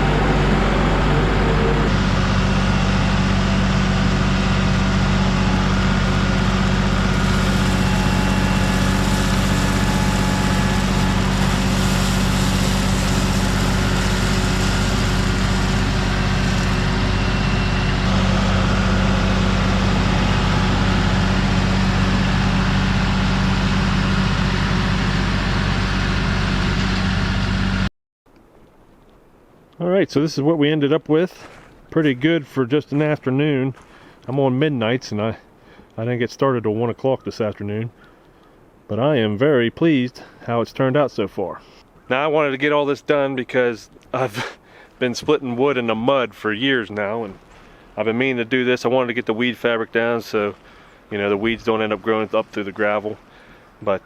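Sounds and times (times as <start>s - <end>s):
tractor diesel engine running: 0.0s - 27.9s, 44.2s - 54.0s.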